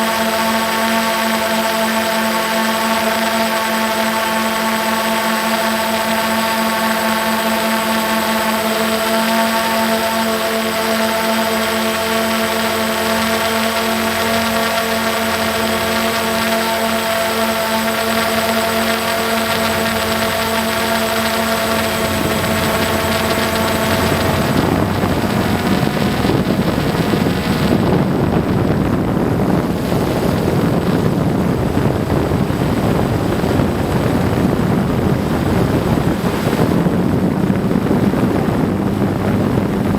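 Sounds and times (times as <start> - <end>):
motor humming: 0.1 - 39.9
rough rushing noise: 14.8 - 39.9.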